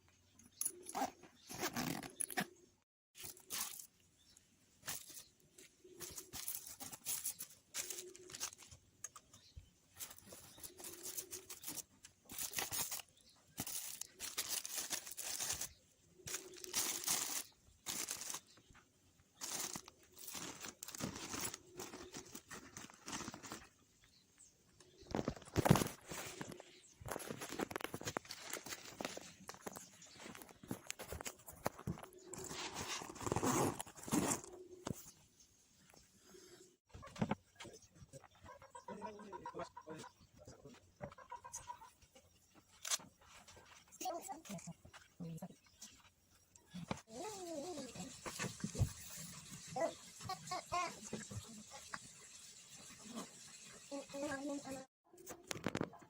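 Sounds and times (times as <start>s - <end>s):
rustling and crinkling: 0.4s - 2.6s, 3.2s - 36.1s, 40.7s - 54.3s, 55.2s - 56.0s.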